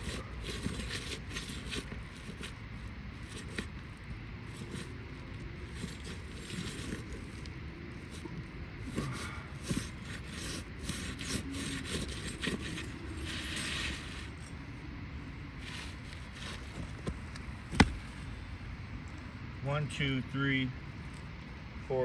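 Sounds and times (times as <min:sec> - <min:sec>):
roof shingles scraping: 0:00.0 - 0:14.5, 0:15.5 - 0:18.3.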